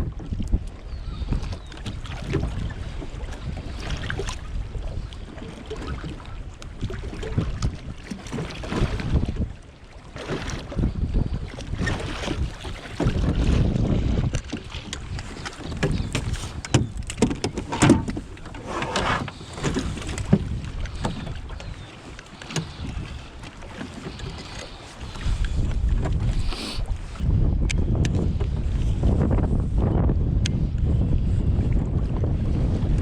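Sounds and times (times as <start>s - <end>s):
water lapping at hull: 0.0s - 33.0s
wind buffeting microphone: 0.0s - 33.0s
short knocks and clicks: 14.4s - 21.2s.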